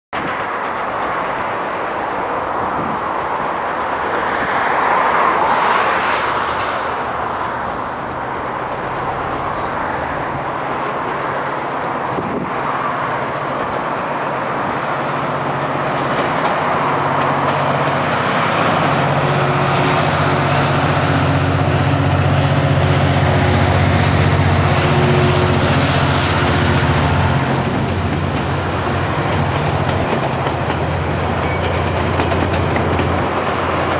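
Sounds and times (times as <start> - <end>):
train rushing on rails: 0.2 - 33.9
diesel engine drone: 14.1 - 31.4.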